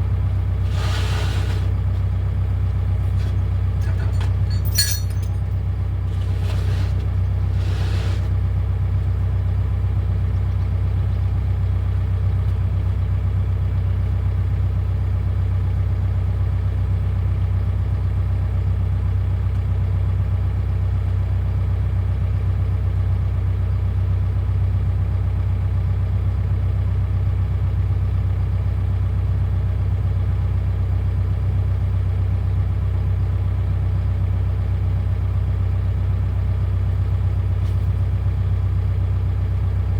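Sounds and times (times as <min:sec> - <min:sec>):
excavator diesel engine humming: 0:00.0 - 0:21.0
metal rattles and clanks: 0:03.1 - 0:07.0.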